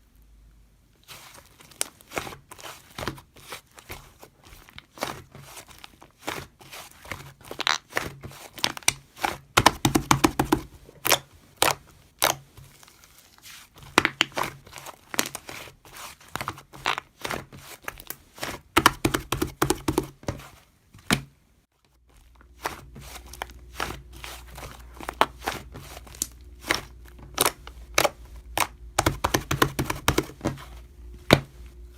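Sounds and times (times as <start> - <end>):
crinkly material crackling: 0.9 - 9.6, 10.7 - 18.8, 21.7 - 31.9
steady low hum: 22.2 - 31.9.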